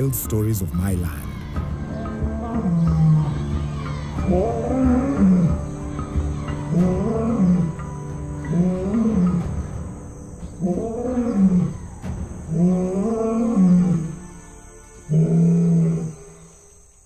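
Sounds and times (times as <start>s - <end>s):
background music with low drone: 0.0s - 17.0s
lion roaring: 2.0s - 9.6s, 10.6s - 14.2s, 15.1s - 16.5s.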